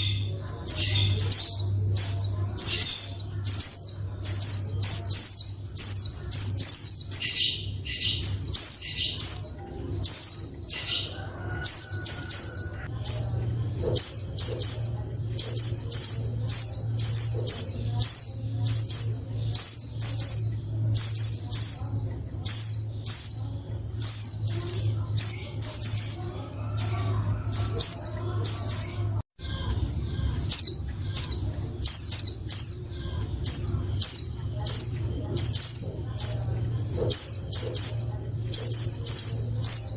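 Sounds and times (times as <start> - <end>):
steady low hum: 0.0 - 39.9
bird chattering calls: 30.5 - 39.9.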